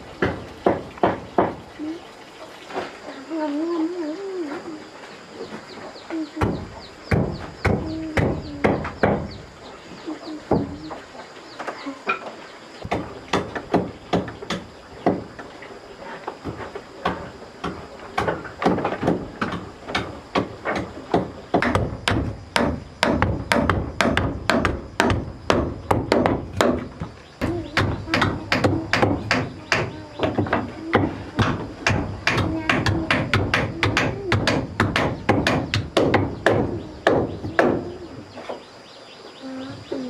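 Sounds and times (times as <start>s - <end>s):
sharp blows on wood: 17.0s - 37.9s.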